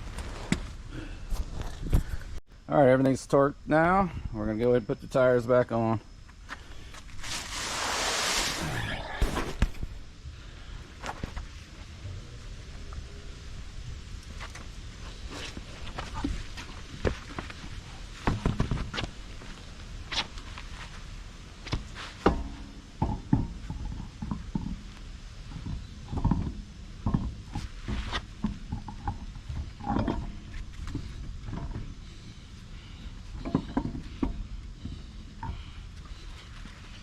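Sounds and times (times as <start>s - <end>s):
knocks and clunks of wheel fitting: 18.2s - 19.1s, 21.6s - 32.2s, 33.2s - 36.2s.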